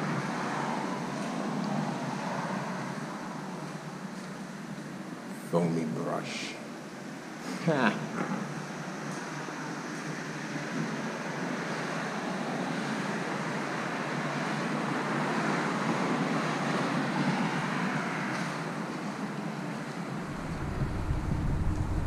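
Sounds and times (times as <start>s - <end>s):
road traffic rushing: 20.0s - 22.0s.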